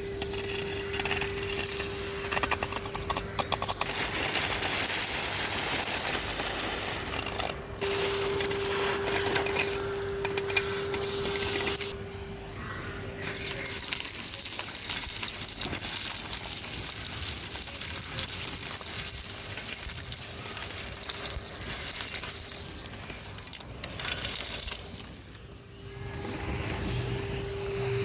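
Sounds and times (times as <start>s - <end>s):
grit rattling up a hose: 0.0s - 12.0s, 13.2s - 25.8s
vacuum cleaner motor hum: 25.8s - 28.0s.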